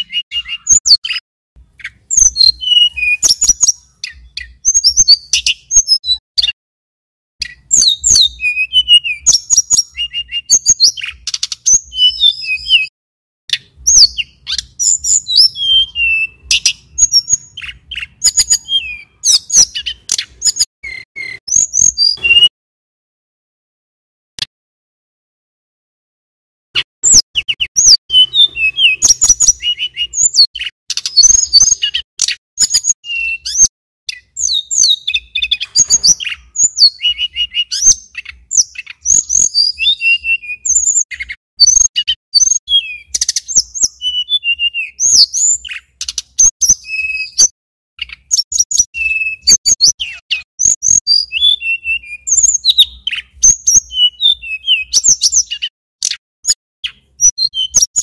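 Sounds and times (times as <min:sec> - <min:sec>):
bird singing high chirps: 0:00.0 - 0:06.6, 0:07.4 - 0:12.9, 0:13.5 - 0:22.5, 0:26.8 - 0:58.0.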